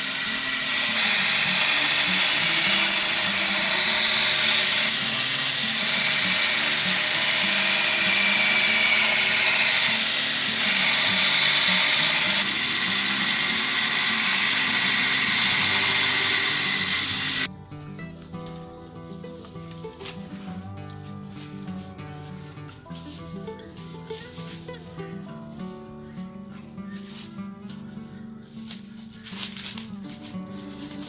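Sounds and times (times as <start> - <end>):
power tool running on steel: 0.0 - 17.5.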